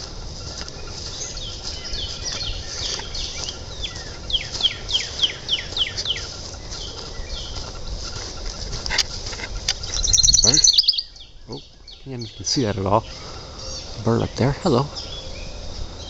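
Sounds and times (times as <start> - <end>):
songbird whistled notes: 9.9 - 12.0.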